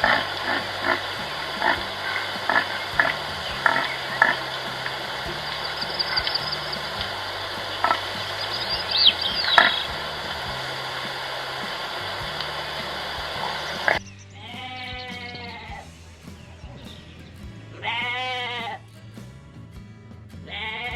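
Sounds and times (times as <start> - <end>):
short calls: 0.0 - 18.8
noisy outdoor ambience: 0.0 - 20.9
sheep or goat bleating: 14.4 - 15.8, 17.7 - 18.8, 20.5 - 20.9.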